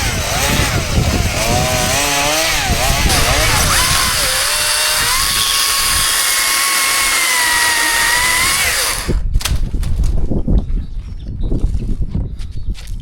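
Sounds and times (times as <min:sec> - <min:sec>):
chainsaw running at high revs: 0:00.0 - 0:09.2.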